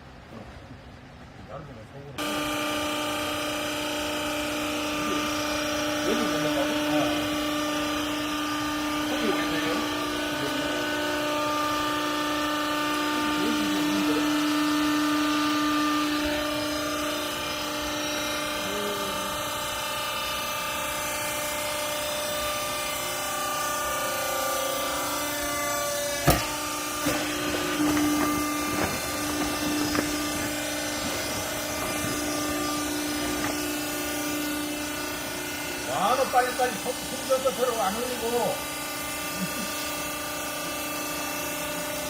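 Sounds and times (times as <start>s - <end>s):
hydraulic press whine: 0.0s - 42.0s
sharp knocks: 26.2s - 33.8s.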